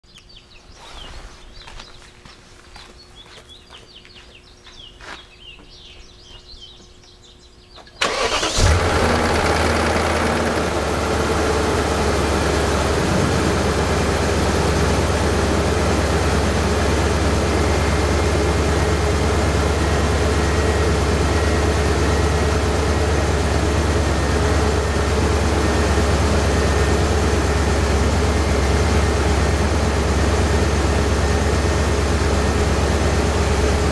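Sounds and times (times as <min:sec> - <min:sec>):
car engine idling: 0:08.0 - 0:33.9
car engine starting: 0:08.0 - 0:33.9.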